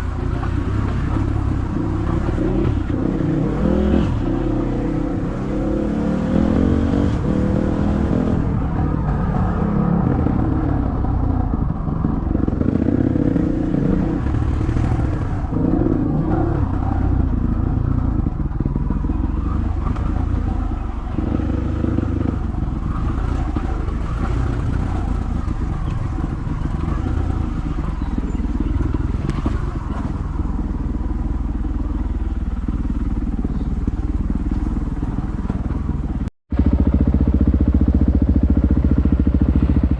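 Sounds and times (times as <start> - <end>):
dirt bike engine revving: 0.0 - 10.6.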